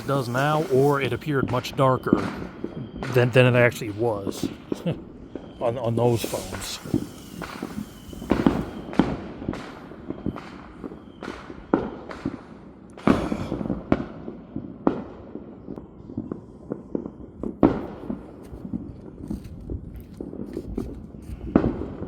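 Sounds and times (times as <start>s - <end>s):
fireworks bangs and crackles: 0.0s - 22.0s
fireworks booms with rumbling echoes: 0.0s - 22.0s.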